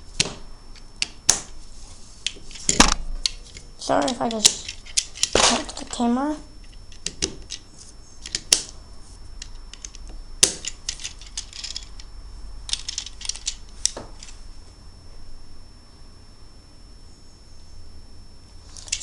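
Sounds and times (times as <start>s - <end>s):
plastic parts rattling: 9.8s - 12.0s, 12.7s - 13.6s.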